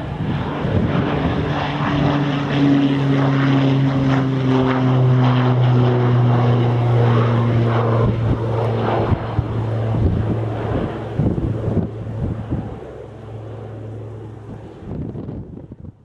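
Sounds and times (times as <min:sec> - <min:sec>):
propeller aircraft engine drone: 0:00.0 - 0:16.0.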